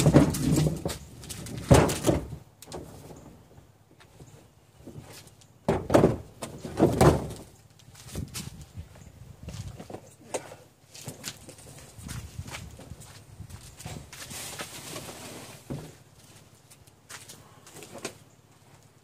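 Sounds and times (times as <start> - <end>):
garbage can knocks and thumps: 0.0 - 3.1, 5.6 - 7.5.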